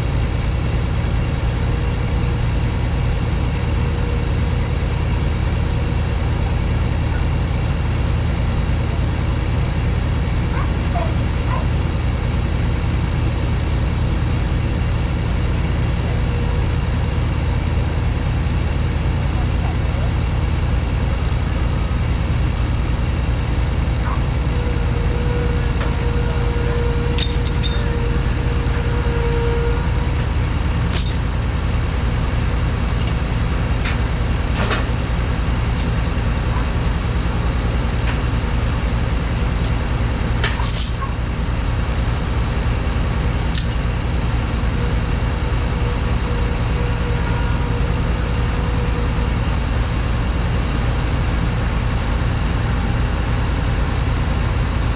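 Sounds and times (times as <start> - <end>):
heavy diesel engine running: 0.0 - 54.9
sharp clinks and rattles: 25.7 - 31.6, 32.2 - 41.1, 43.5 - 44.0.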